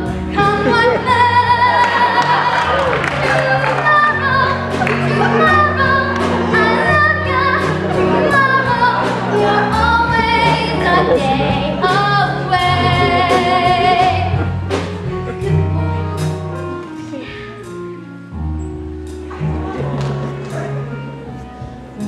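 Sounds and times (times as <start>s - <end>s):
pit orchestra: 0.0s - 22.0s
show-tune singing: 0.3s - 14.8s.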